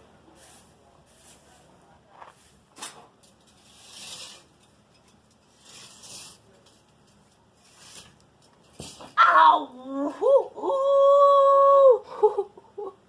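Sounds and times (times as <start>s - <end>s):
metal tool scraping ground: 0.3s - 9.2s.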